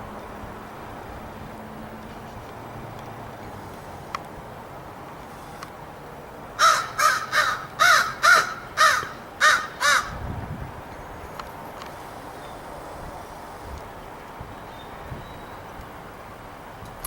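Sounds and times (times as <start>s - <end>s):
crow cawing: 6.6s - 10.2s.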